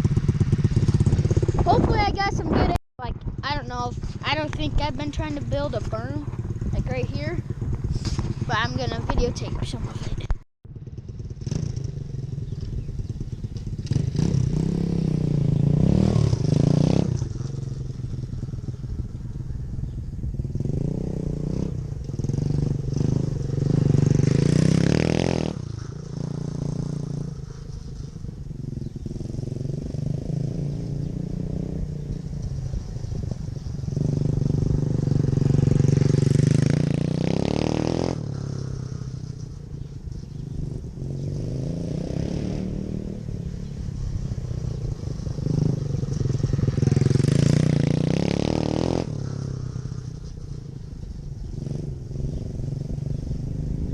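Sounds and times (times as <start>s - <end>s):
dirt bike engine revving: 0.0s - 18.4s, 20.4s - 28.0s, 28.7s - 32.2s, 33.6s - 39.4s, 40.6s - 50.4s.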